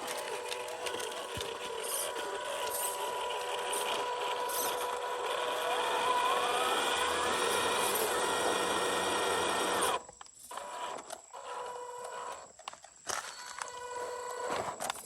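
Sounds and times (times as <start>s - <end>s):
toy car electric motor whining: 0.0s - 15.0s.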